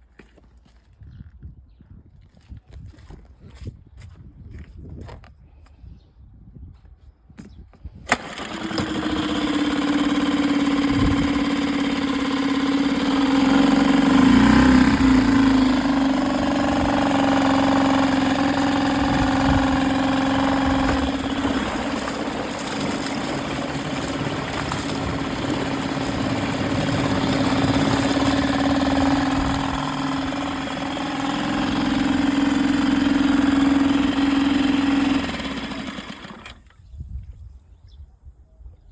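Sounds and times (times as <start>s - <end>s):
outboard motor running: 8.1s - 36.8s.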